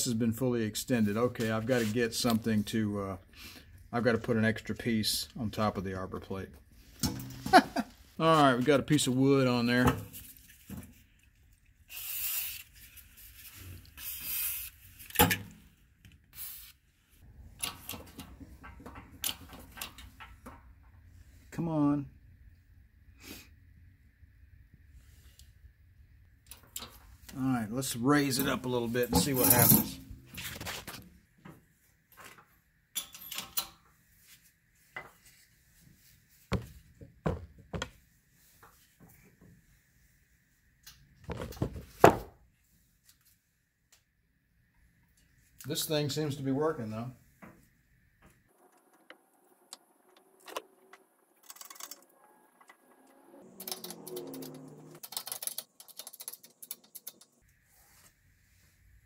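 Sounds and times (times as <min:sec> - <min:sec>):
metal clinks and knocks of tools: 0:32.3 - 0:33.8.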